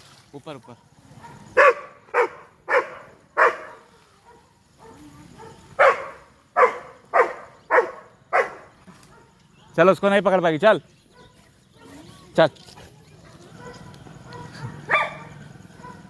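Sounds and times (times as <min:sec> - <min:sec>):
dog barking: 0:00.6 - 0:09.8, 0:11.1 - 0:11.9, 0:13.5 - 0:16.0.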